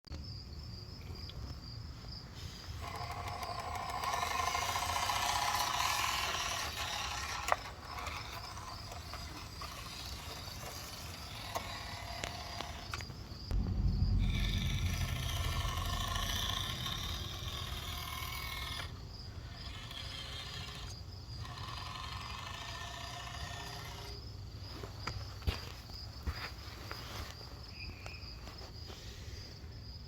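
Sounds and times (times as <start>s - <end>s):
toy truck electric motor whining: 2.4s - 13.2s, 15.0s - 24.9s
loud low rumble: 13.5s - 19.1s.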